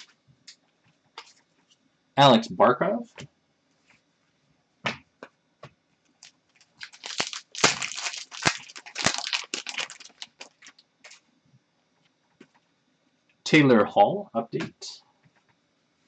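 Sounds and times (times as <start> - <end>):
wrapper crinkling and tearing: 6.2 - 11.2.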